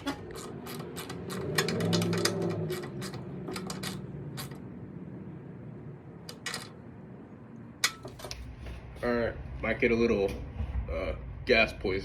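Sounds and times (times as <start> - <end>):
clicks and clatter of parts: 0.0 - 4.7, 6.2 - 6.8, 7.8 - 8.5.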